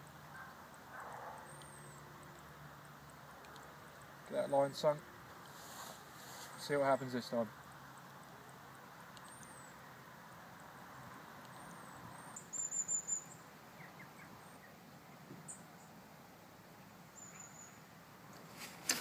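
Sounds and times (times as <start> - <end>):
faint outdoor ambience: 0.0 - 19.0
small bird chirping: 9.2 - 10.0, 11.5 - 14.8, 17.1 - 17.9
bird twittering: 11.6 - 14.7.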